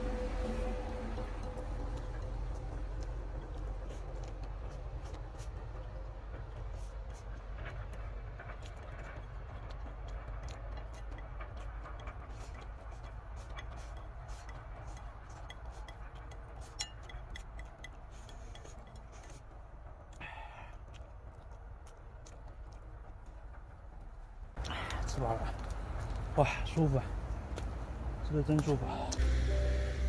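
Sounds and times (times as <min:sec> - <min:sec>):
steady low rumble: 0:00.0 - 0:30.0
utensils clinking against a pot: 0:13.6 - 0:19.2.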